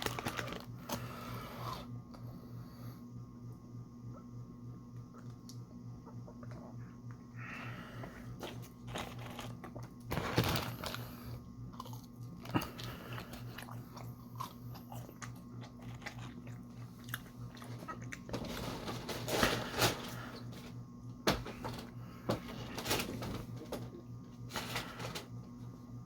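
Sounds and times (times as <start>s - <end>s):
person chewing and crunching: 0.0s - 1.9s, 8.2s - 18.7s.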